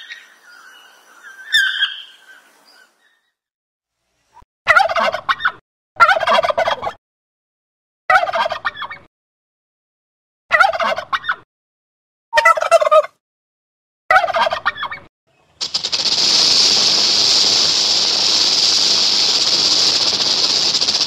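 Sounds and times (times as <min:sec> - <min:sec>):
turkey gobbling: 0:01.4 - 0:02.2, 0:04.7 - 0:07.0, 0:08.1 - 0:09.0, 0:10.5 - 0:11.4, 0:12.4 - 0:13.2, 0:14.1 - 0:15.0
snake hissing: 0:15.6 - 0:21.0.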